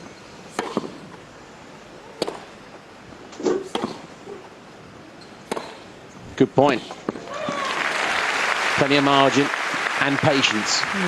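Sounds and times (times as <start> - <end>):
tennis ball hit by racket: 0.5 - 1.2, 2.1 - 2.5, 3.4 - 4.1, 5.4 - 5.9.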